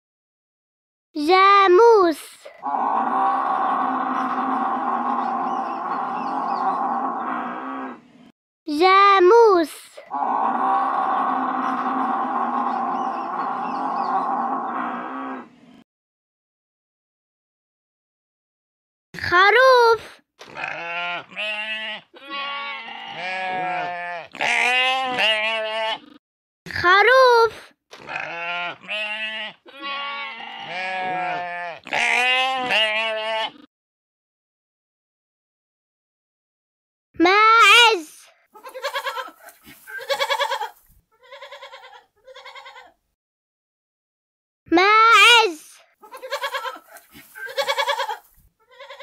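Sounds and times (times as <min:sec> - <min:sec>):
sheep bleating: 0:20.4 - 0:26.2, 0:28.0 - 0:33.7, 0:38.6 - 0:43.0, 0:46.0 - 0:49.0.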